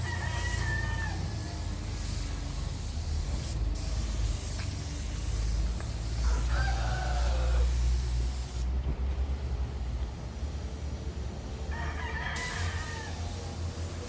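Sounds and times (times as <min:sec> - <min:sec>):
rooster crowing: 0:00.0 - 0:01.6, 0:06.2 - 0:07.8, 0:11.7 - 0:13.3
spray painting hiss: 0:00.0 - 0:14.0.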